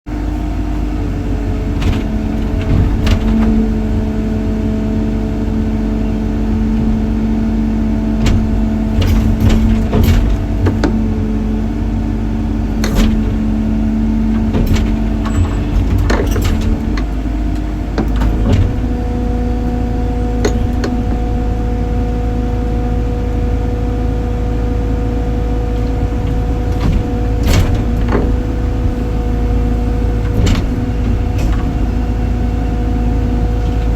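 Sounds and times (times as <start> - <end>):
heavy machine engine running: 0.1 - 33.9
sharp knocks and clanks: 1.7 - 4.2, 8.1 - 11.4, 12.8 - 19.3, 20.3 - 21.6, 25.8 - 33.9.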